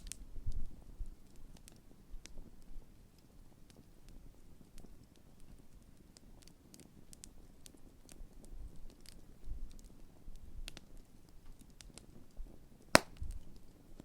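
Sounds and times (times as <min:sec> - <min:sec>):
campfire crackling: 0:13.0 - 0:13.2.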